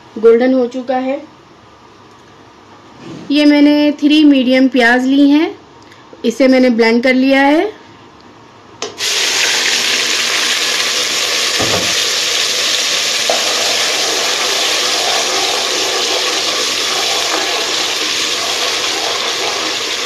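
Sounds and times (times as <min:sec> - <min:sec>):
paste sizzling in hot oil: 0:09.0 - 0:20.0
low knock: 0:11.6 - 0:12.1.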